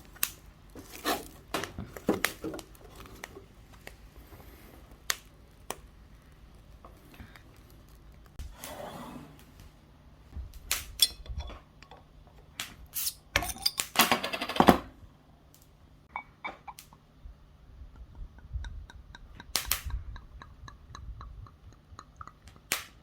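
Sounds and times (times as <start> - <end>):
cookware and utensils clinking: 11.0 - 11.6, 13.0 - 14.6.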